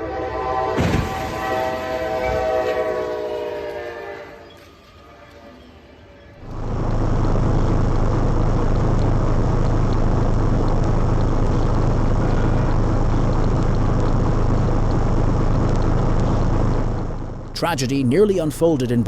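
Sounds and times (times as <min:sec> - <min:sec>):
low hum: 0:06.4 - 0:19.0.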